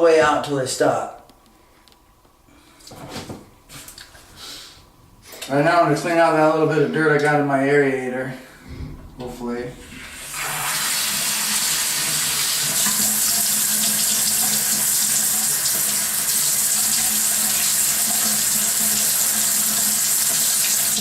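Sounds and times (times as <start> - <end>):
faucet running into sink basin: 9.8 - 21.0.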